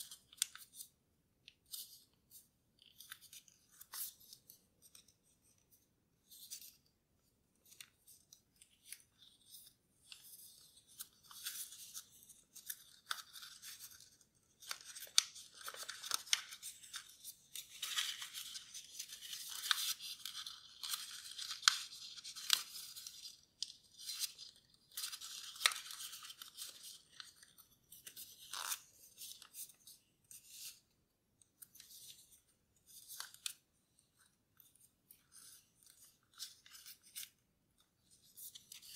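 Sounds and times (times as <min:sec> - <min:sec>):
paper rustling and crinkling: 0:07.6 - 0:30.8.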